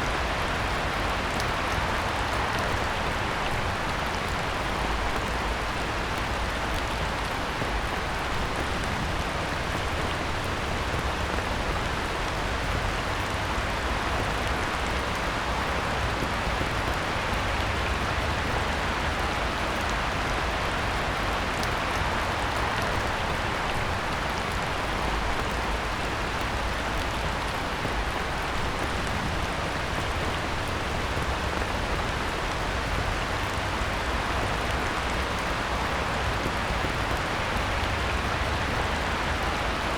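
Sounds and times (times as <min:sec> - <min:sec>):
heavy rain on a pond: 0:00.0 - 0:39.9.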